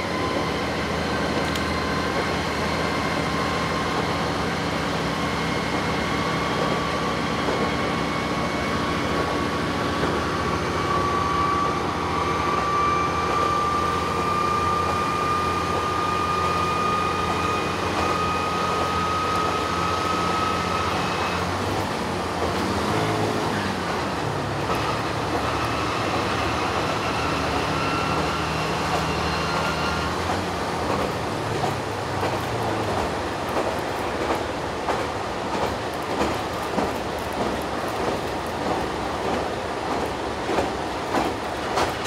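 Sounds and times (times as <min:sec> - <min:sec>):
train wheels on rails: 0:00.0 - 0:42.0
wheels clicking over rail joints: 0:30.2 - 0:42.0.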